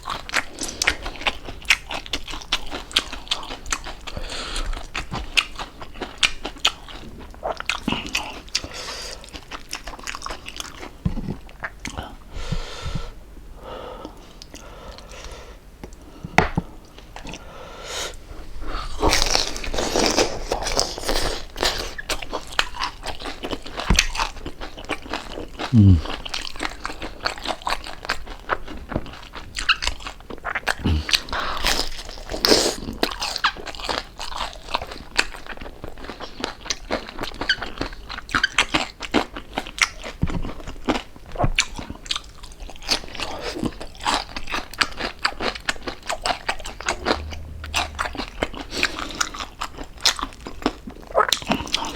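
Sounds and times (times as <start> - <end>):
crunching and chewing crispy food: 0.0 - 12.2, 19.0 - 46.5.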